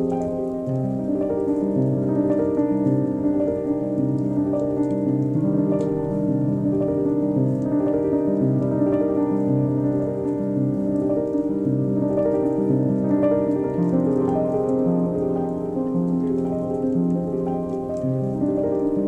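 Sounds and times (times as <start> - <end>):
slow piano notes: 0.0 - 19.0.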